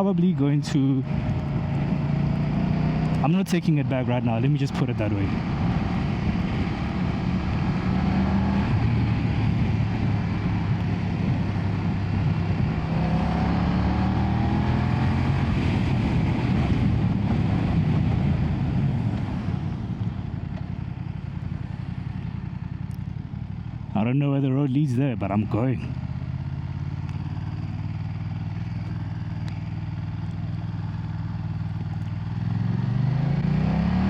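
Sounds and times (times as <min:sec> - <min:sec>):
motorcycle engine running: 0:00.0 - 0:34.0
rush of wind and road: 0:00.0 - 0:34.0.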